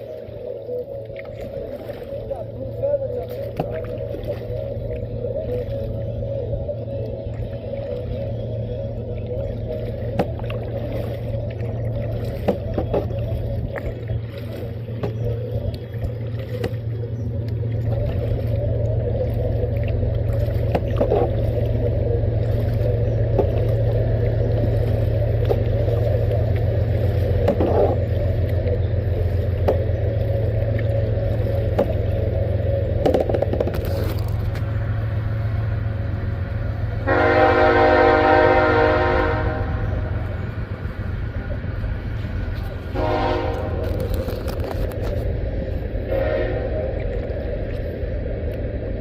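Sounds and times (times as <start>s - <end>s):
heavy vehicle rumbling: 4.4s - 49.0s.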